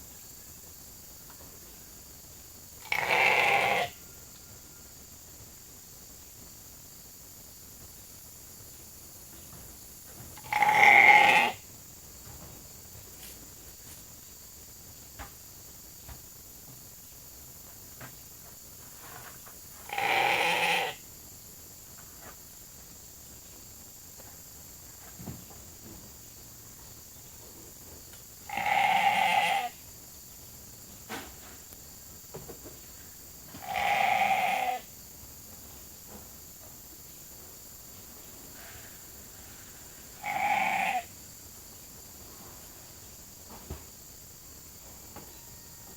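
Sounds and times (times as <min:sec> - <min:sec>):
sheep bleating: 0:02.8 - 0:04.0, 0:10.4 - 0:11.6, 0:19.9 - 0:21.0, 0:28.5 - 0:29.8, 0:33.6 - 0:34.9, 0:40.2 - 0:41.1.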